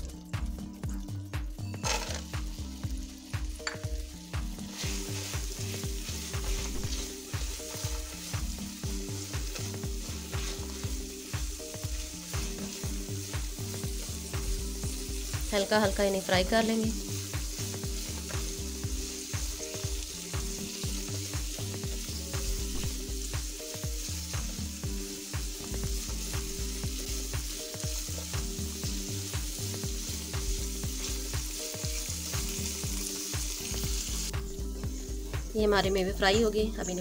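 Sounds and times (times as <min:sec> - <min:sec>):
nuts sizzling in butter: 0:00.0 - 0:37.0
soft background music: 0:00.0 - 0:37.0
spatula stirring in pan: 0:04.6 - 0:34.1.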